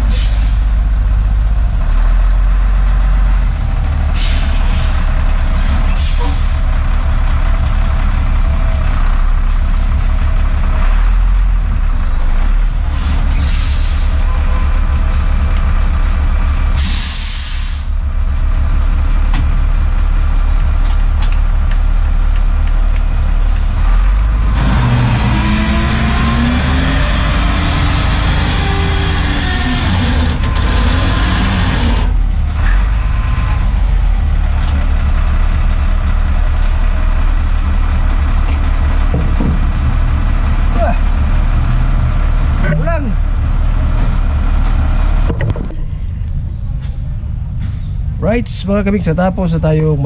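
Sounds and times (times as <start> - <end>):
diesel truck engine idling: 0.0 - 50.0
noisy engine running shifting tones: 0.0 - 50.0.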